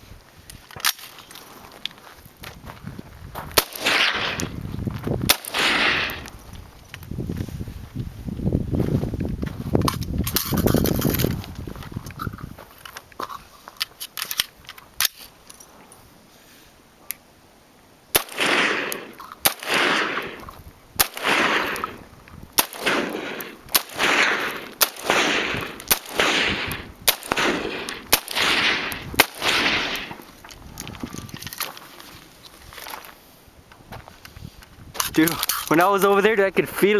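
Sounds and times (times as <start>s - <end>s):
rifle shots with rolling echo: 3.6s - 4.6s, 5.2s - 6.4s, 18.1s - 30.4s.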